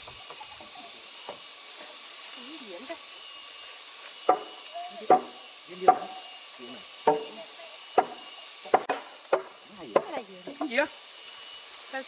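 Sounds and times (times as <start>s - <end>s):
tool knocking on wood: 4.3s - 4.5s, 5.1s - 6.2s, 7.0s - 7.4s, 8.0s - 10.8s.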